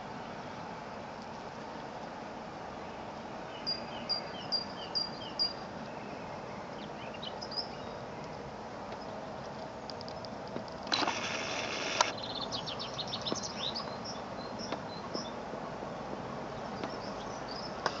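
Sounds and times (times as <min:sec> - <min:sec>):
background hiss: 0:00.0 - 0:18.0
small birds chirping: 0:03.5 - 0:18.0
loud buzzy bird trill: 0:10.9 - 0:14.6.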